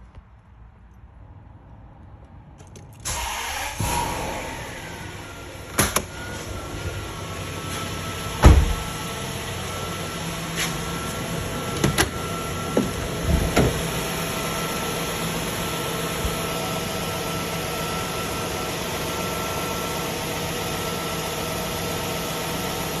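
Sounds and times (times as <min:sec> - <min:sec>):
car engine idling: 0:03.1 - 0:23.0
thin engine whine: 0:03.1 - 0:23.0
sharp knocks: 0:13.2 - 0:14.0.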